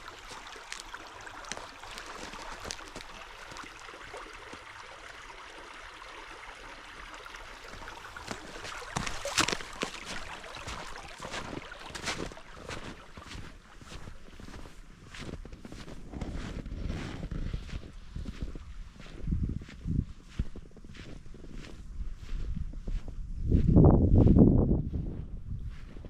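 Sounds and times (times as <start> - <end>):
creek water running: 0.0 - 19.0.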